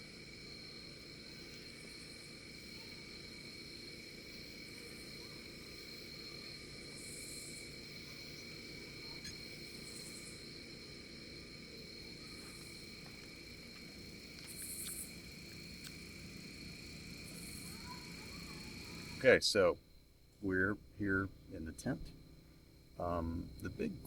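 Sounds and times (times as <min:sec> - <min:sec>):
crickets trilling: 0:00.0 - 0:24.0
insect buzzes: 0:00.0 - 0:24.0
faint low rumble: 0:12.5 - 0:24.0.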